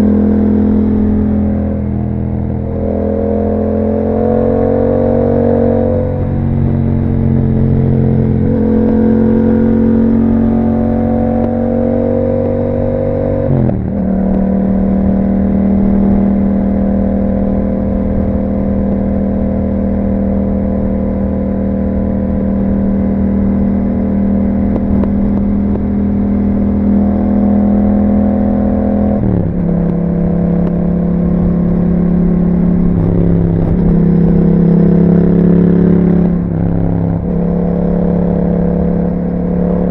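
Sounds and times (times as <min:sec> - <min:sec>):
motorcycle engine shifting gears: 0:00.0 - 0:39.9.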